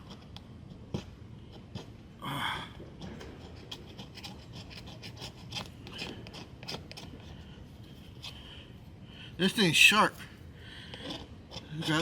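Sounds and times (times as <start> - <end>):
knife scraping plastic: 3.0 - 8.5, 10.8 - 12.0.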